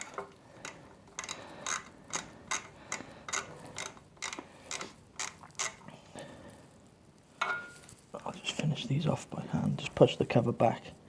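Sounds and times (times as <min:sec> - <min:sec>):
socket ratchet clicking: 0:00.0 - 0:05.8.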